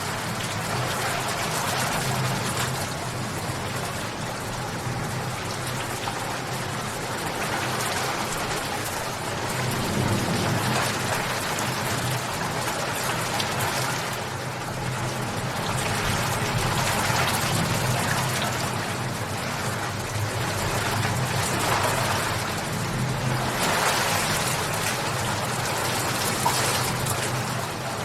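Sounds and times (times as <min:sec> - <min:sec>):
rain falling: 0:00.0 - 0:28.0.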